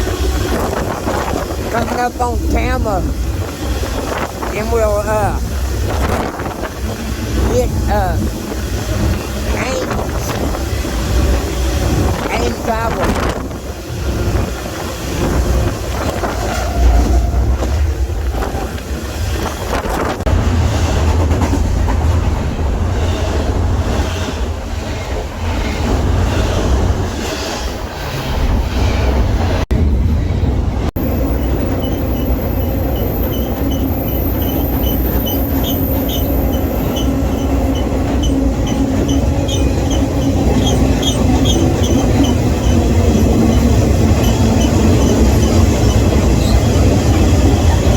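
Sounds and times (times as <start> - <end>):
freight train rumbling: 0.0 - 47.9
high-pitched wheel squeal: 31.1 - 46.6
train wheels clicking: 31.3 - 47.9.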